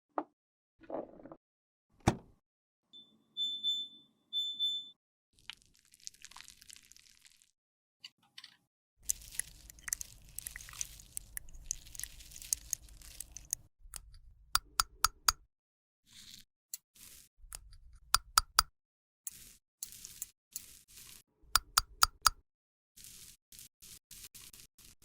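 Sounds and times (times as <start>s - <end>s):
makeup crunching and scraping: 9.0s - 13.7s
sharp clicks: 12.5s - 15.4s, 17.5s - 18.7s, 21.6s - 22.4s.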